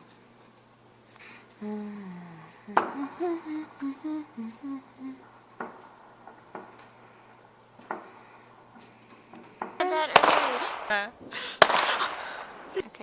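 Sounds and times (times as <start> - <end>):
person humming a tune: 1.6 - 5.4.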